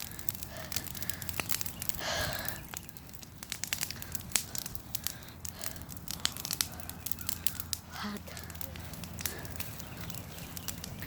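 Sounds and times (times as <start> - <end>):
bonfire crackling and popping: 0.0 - 11.0.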